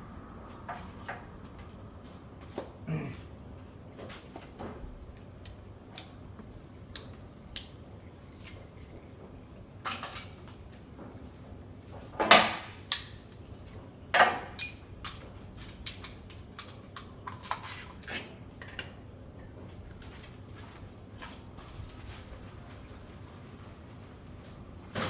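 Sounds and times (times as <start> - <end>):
metal tools clinking: 14.5 - 17.8.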